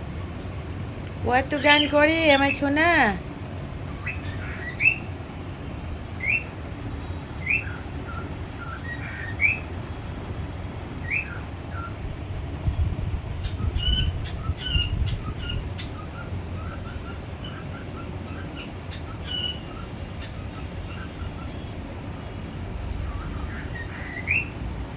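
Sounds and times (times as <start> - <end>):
parrot whistled chirps: 4.0 - 5.0, 6.2 - 6.5, 7.4 - 9.6, 13.8 - 19.6
parrot squawking: 4.0 - 5.1, 6.2 - 6.5, 7.4 - 9.6, 13.4 - 21.6.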